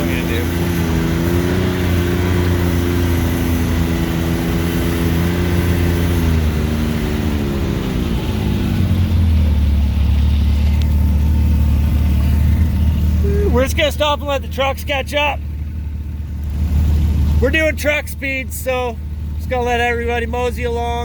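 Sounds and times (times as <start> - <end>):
off-road vehicle engine: 0.0 - 21.0.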